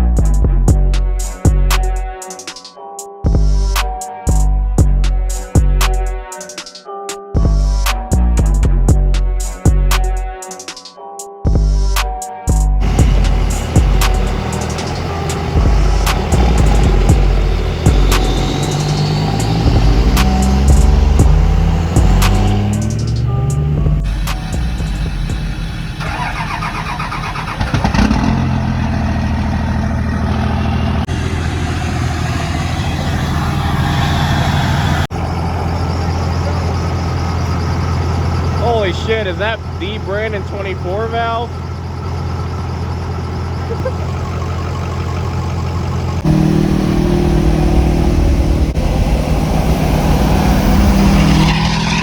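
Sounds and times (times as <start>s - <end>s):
truck engine idling: 12.5s - 52.0s.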